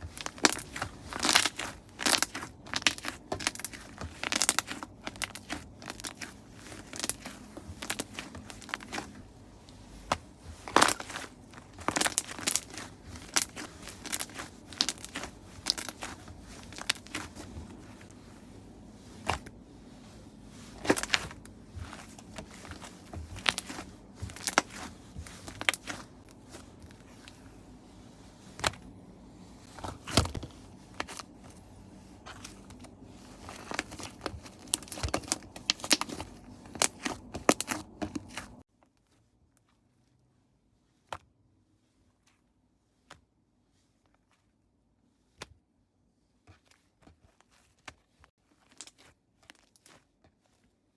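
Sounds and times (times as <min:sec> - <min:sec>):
slime crackling and popping: 0:00.1 - 0:09.1, 0:10.6 - 0:17.4, 0:20.8 - 0:26.0, 0:33.6 - 0:38.6.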